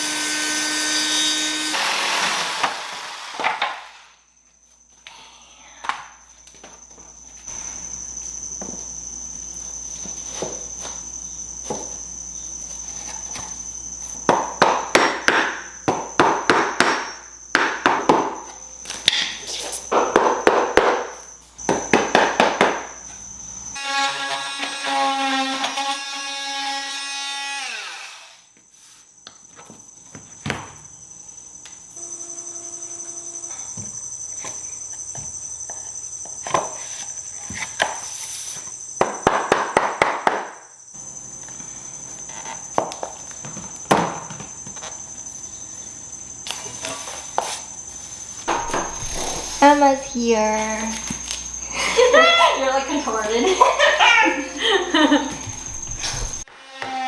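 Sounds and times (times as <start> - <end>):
high-pitched whine: 31.9 - 35.7.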